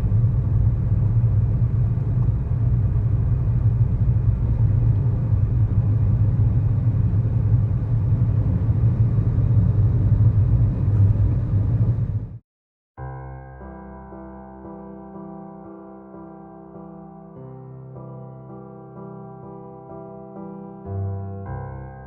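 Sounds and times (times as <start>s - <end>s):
car engine and road noise drone: 0.0s - 12.4s.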